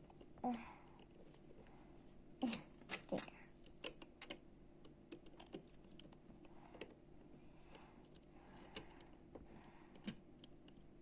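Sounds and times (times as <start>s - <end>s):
plastic bricks clicking: 2.4s - 7.0s.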